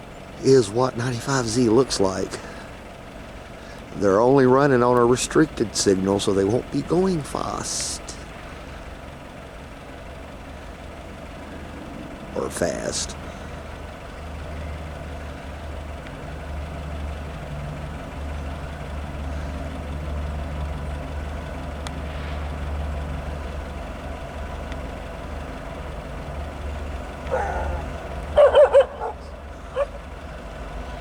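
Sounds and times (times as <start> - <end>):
diesel locomotive engines droning: 0.0 - 31.0
dog yipping: 27.3 - 30.0.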